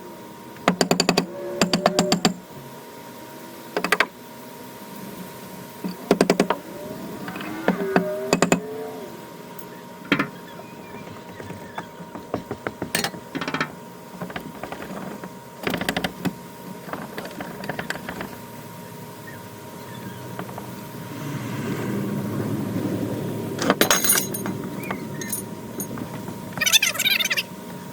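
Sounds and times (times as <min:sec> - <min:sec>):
tools knocking on wooden boards: 0:03.8 - 0:04.1, 0:05.9 - 0:06.6, 0:08.3 - 0:08.6, 0:09.6 - 0:18.4
wood creaking and squeaking: 0:05.9 - 0:08.7, 0:09.6 - 0:20.9, 0:23.6 - 0:27.5.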